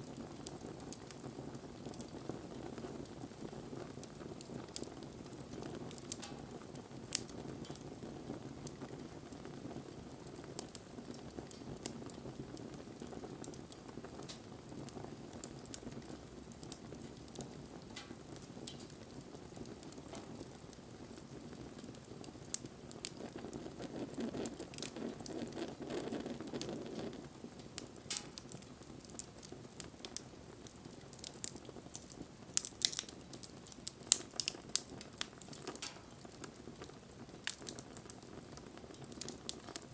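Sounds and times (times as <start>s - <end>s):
campfire burning: 0.0s - 39.9s
fire crackling and popping: 0.0s - 39.9s.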